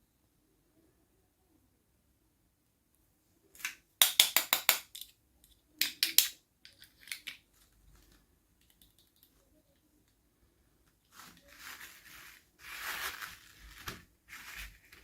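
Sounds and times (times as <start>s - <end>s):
packaging crackling: 11.1s - 15.0s.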